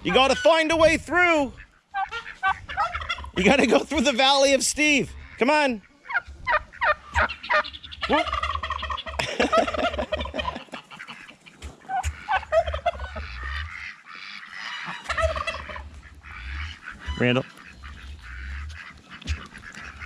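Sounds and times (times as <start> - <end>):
fowl calling: 0.0 - 0.8, 1.5 - 20.0.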